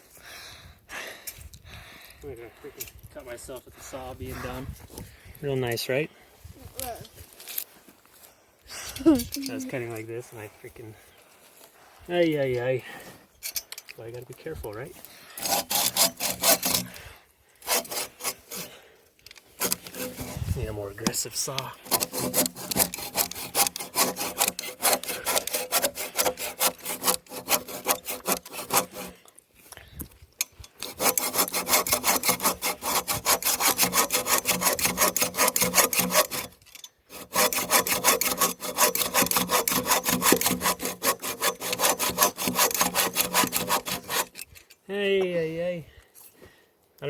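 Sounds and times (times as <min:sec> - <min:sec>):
hand saw cutting wood: 0:09.0 - 0:09.8, 0:15.4 - 0:17.0, 0:17.6 - 0:18.8, 0:19.5 - 0:29.2, 0:30.7 - 0:44.5.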